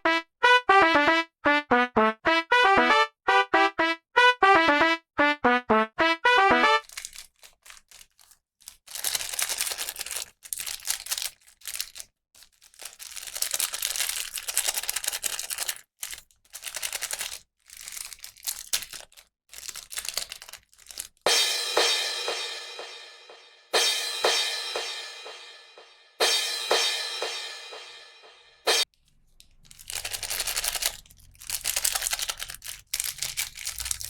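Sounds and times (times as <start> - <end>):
plastic packaging crinkling: 6.8 - 21.2, 29.1 - 34.0.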